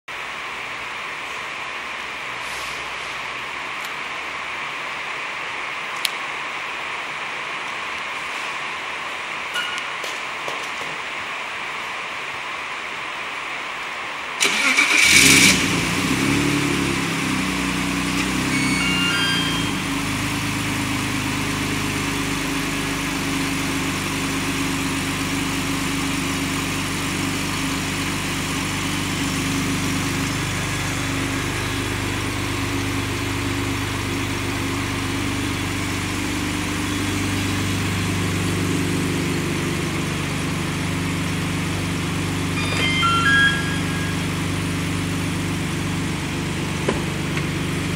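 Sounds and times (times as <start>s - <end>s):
car engine starting and idling: 14.4s - 47.9s
short high chirps: 18.4s - 19.9s, 42.6s - 44.6s.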